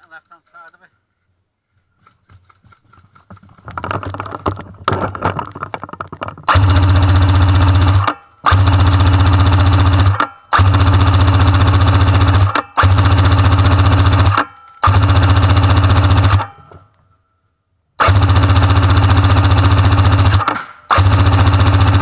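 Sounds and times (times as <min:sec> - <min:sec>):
handling clicks and rattles: 0:02.0 - 0:06.9
airsoft gun full-auto bursts: 0:06.5 - 0:16.6, 0:18.0 - 0:22.0.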